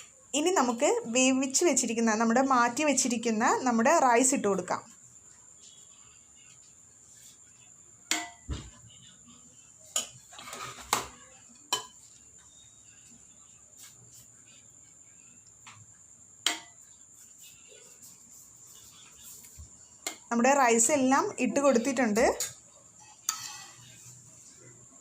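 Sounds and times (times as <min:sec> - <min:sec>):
spoon knocking on cooking pot: 0:08.1 - 0:08.6, 0:11.7 - 0:12.0
rice being spooned in: 0:22.4 - 0:24.6.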